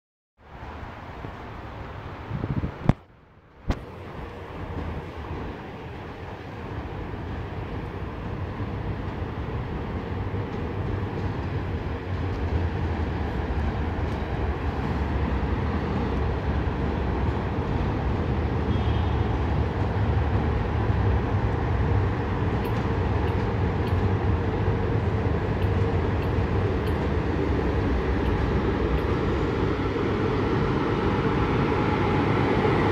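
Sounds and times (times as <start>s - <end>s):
train rumble and hum: 0.4s - 32.9s.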